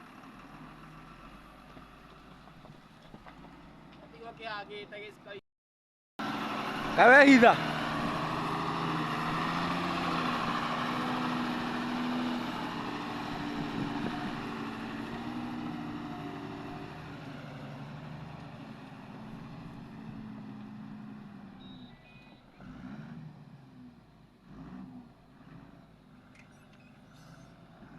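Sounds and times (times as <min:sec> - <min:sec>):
heavy vehicle engine running: 0:06.2 - 0:27.9.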